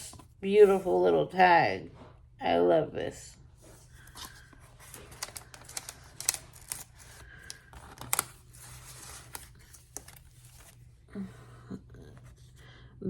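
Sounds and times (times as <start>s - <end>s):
paper pages rustling: 3.6s - 11.0s
crisp paper clicks: 4.0s - 10.8s.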